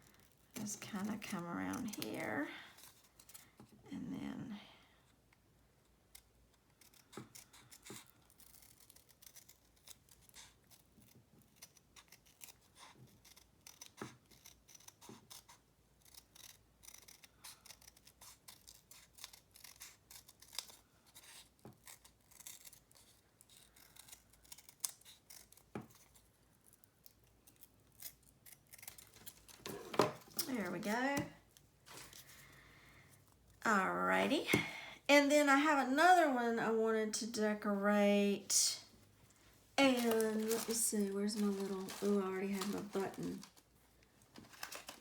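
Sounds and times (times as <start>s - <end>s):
scissors snipping paper: 0.2s - 2.2s, 6.1s - 32.3s, 39.8s - 43.6s, 44.4s - 45.0s.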